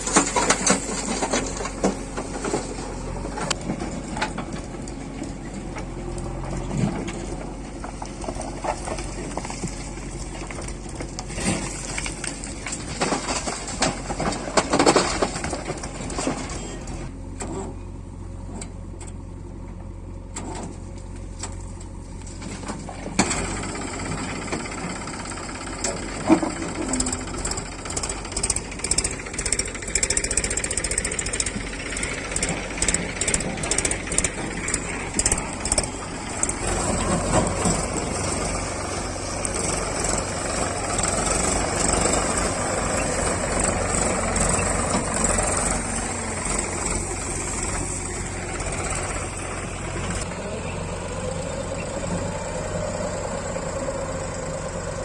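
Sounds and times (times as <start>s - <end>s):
diesel machinery engine running: 0.0s - 55.0s
sharp knocks and clanks: 22.6s - 47.9s.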